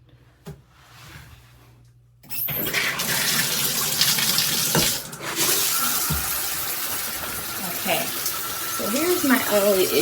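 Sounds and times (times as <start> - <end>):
shower water spraying: 2.5 - 10.0.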